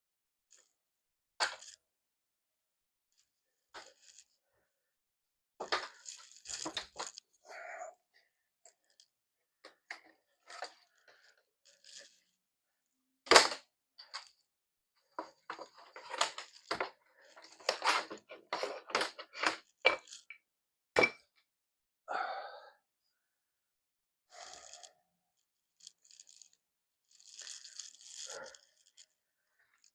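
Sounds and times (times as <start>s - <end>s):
plastic track pieces clicking: 1.4s - 1.8s, 3.8s - 4.3s, 5.6s - 7.3s, 8.7s - 12.4s, 13.3s - 14.4s, 15.2s - 20.3s, 24.3s - 24.9s, 25.8s - 29.1s.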